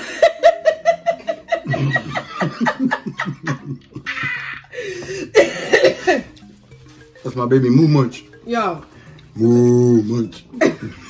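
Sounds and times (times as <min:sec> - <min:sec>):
person laughing: 0:00.0 - 0:06.4.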